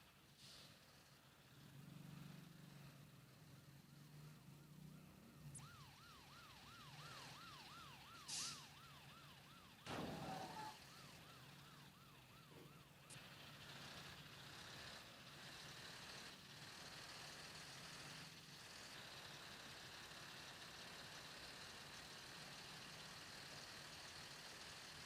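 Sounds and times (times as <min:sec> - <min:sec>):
low drone of vehicle engines: 0:00.0 - 0:25.0
short hiss: 0:00.3 - 0:00.9, 0:08.3 - 0:08.6
siren yelping: 0:04.9 - 0:13.1.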